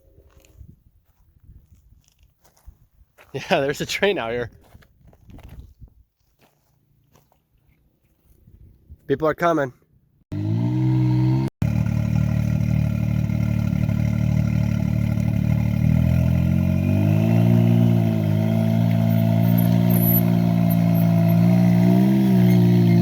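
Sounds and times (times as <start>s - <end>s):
engine running at low speed: 10.3s - 23.0s.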